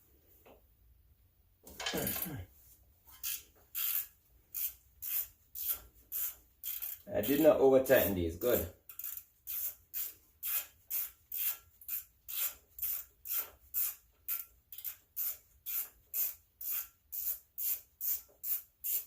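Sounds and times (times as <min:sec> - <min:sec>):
ratchet wrench clicking: 0:03.2 - 0:07.5, 0:08.8 - 0:19.0.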